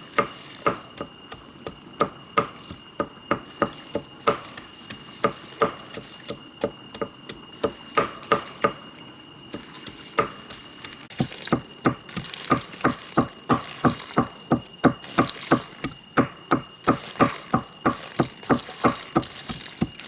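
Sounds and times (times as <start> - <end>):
hand tool strikes: 11.1 - 20.0.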